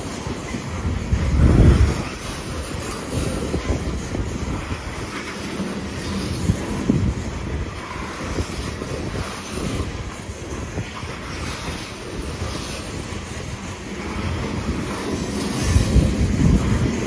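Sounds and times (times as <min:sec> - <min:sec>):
freight train wheels rumbling on rails: 0:00.0 - 0:17.0
wind buffeting microphone: 0:00.0 - 0:17.0.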